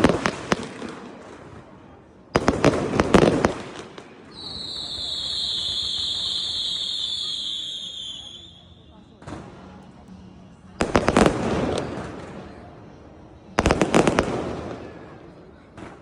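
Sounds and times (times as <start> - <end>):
fireworks cracking and banging: 0.0 - 7.3, 10.8 - 12.7, 13.6 - 16.0
whistling fireworks: 0.0 - 9.8, 10.8 - 16.0.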